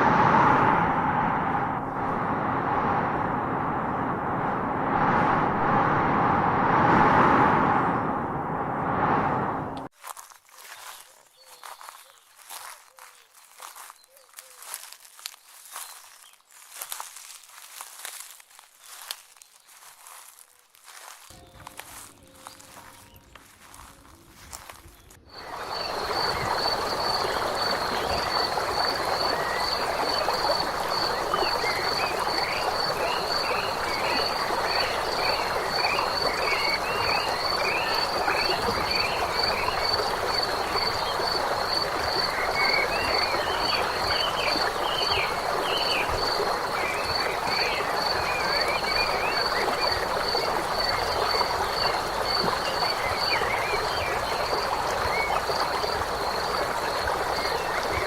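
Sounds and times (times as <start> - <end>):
frogs croaking: 24.4 - 58.0.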